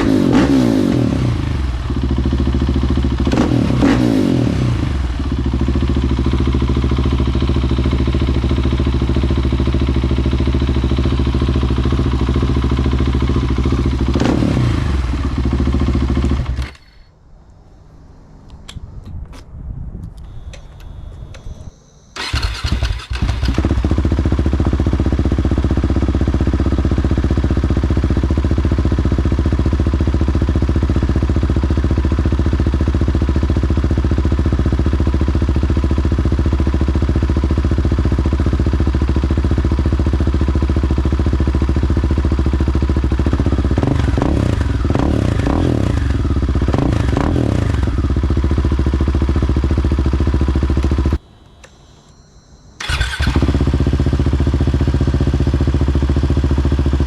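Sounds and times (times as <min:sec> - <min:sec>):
motorcycle engine idling: 0:00.0 - 0:17.2, 0:21.7 - 0:51.2, 0:52.8 - 0:57.0
throttle blips: 0:50.8 - 0:53.6.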